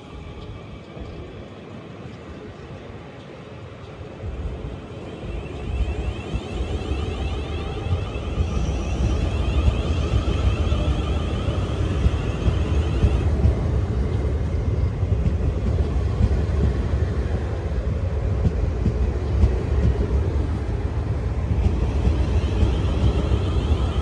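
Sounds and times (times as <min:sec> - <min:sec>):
train rumbling past: 0:00.0 - 0:24.0
high whine: 0:05.0 - 0:13.3.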